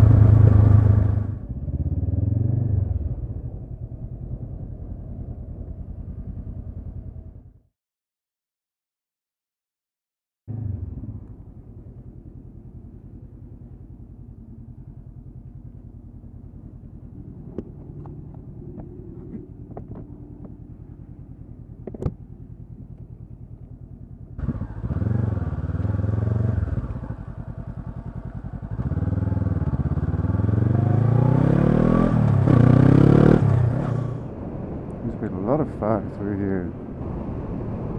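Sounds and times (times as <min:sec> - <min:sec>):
motorcycle accelerating: 0:00.0 - 0:07.7, 0:10.5 - 0:36.0
motorcycle engine idling: 0:03.3 - 0:07.6, 0:10.5 - 0:30.5.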